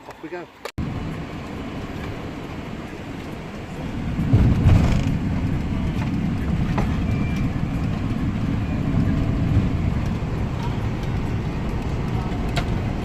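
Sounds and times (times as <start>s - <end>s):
van engine and road rumble: 0.0s - 13.0s.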